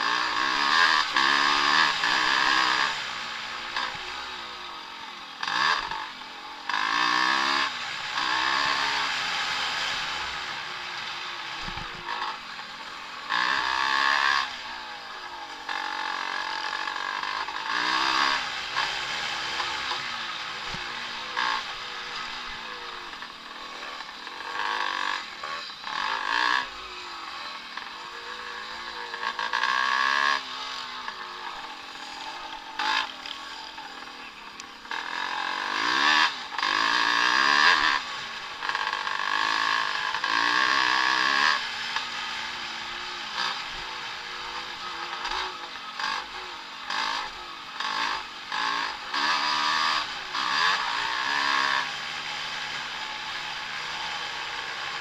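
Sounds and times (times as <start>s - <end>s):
motocross bikes revving: 0.0s - 55.0s.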